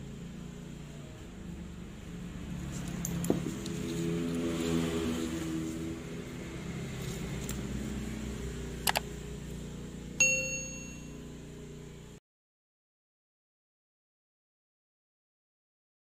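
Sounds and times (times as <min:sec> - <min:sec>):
metallic ding: 0:10.2 - 0:11.3.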